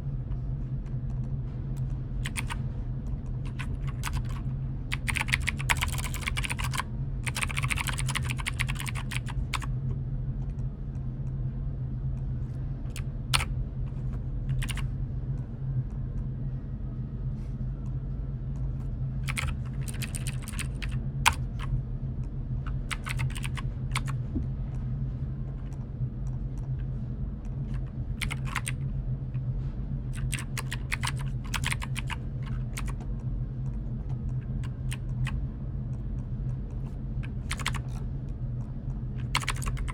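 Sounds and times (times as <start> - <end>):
steady low hum: 0.0 - 39.9
typing on computer keyboard: 2.2 - 2.6, 3.5 - 9.7, 12.9 - 13.5, 14.5 - 14.8, 19.2 - 21.7, 22.7 - 24.2, 27.7 - 28.8, 30.2 - 33.0, 37.2 - 38.0, 39.2 - 39.9.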